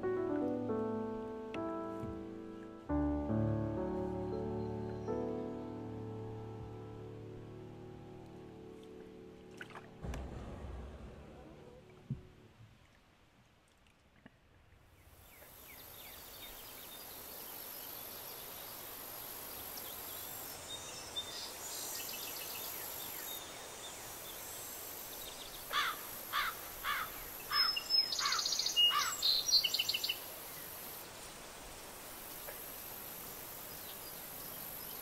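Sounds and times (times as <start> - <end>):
bird calling falling notes: 25.7 - 30.0.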